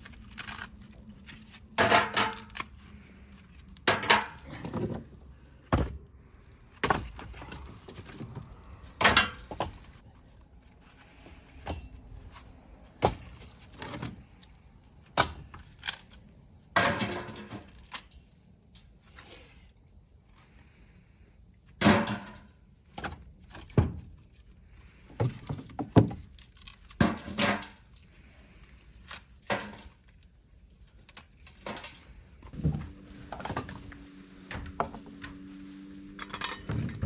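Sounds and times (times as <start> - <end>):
firewood knocking together: 25.1 - 26.3.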